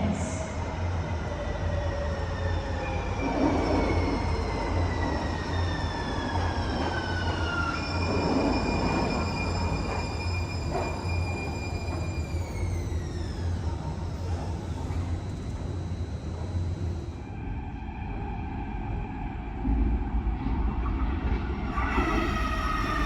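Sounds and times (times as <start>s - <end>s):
tram traction drive whine: 0.0s - 23.0s
steady low hum: 12.2s - 17.9s.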